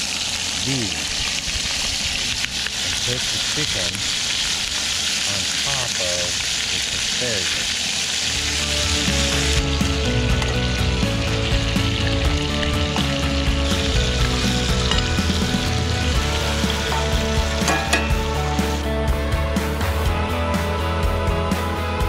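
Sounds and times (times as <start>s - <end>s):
food sizzling in a skillet: 0.0s - 18.9s
background music with bass line: 8.3s - 22.0s.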